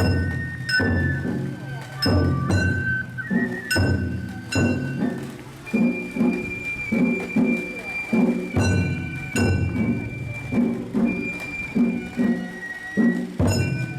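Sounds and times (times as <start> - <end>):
bamboo flute high note: 0.0 - 13.9
taiko drums beating: 0.0 - 13.9
ringing metal strikes: 2.0 - 3.1, 3.7 - 5.4.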